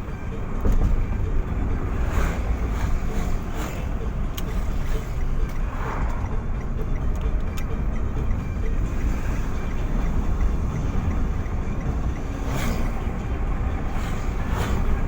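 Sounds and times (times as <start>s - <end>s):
vehicle rumble: 0.0s - 15.0s
rushing whoosh: 1.7s - 6.8s, 12.2s - 15.0s.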